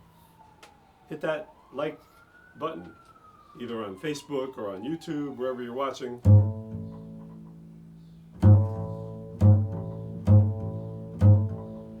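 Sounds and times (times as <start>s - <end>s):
low plucked string notes: 6.2s - 12.0s.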